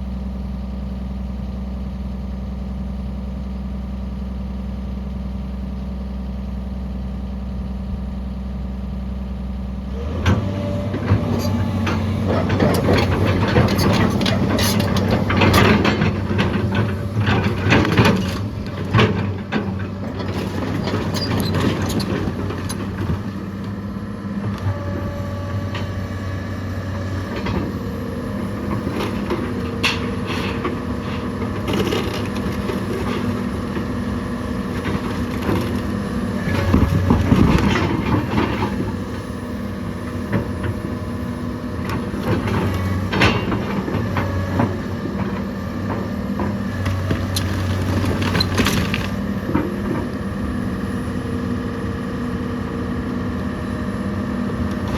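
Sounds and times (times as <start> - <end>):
heavy machine engine running: 0.0 - 54.9
wood and debris cracking: 28.4 - 38.9, 46.8 - 50.2.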